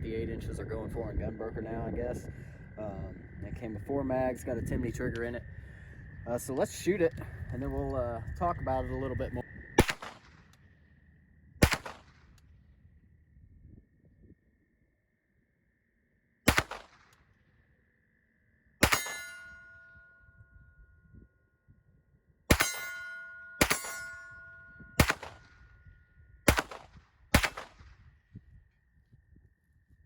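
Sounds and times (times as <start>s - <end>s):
pistol shots: 9.8s - 10.5s, 11.6s - 12.3s, 16.5s - 17.2s, 18.8s - 19.5s, 22.5s - 23.0s, 23.6s - 24.2s, 25.0s - 25.6s, 26.5s - 28.0s
bullets clanging on steel target: 18.8s - 19.9s, 22.5s - 25.4s.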